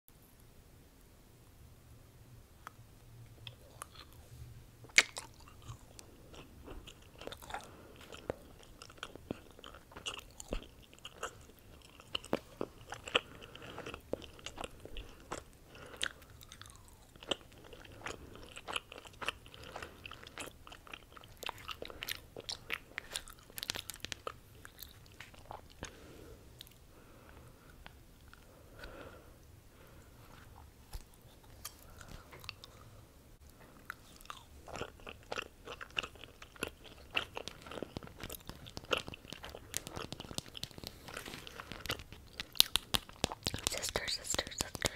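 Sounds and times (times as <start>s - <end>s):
crunching and chewing: 2.6s - 44.9s
chocolate bar cracking: 22.5s - 24.4s, 36.4s - 44.9s.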